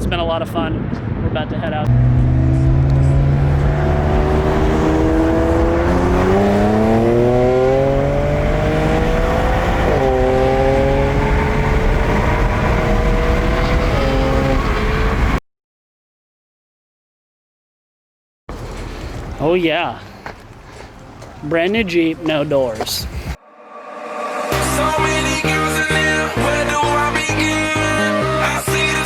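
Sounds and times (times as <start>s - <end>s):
car engine accelerating: 1.8s - 15.4s, 23.4s - 27.9s.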